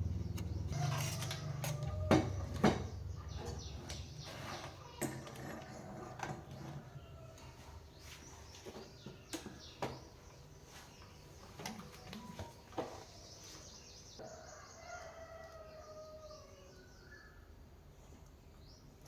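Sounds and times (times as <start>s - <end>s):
rooster crowing: 0.7s - 2.6s, 14.2s - 17.0s.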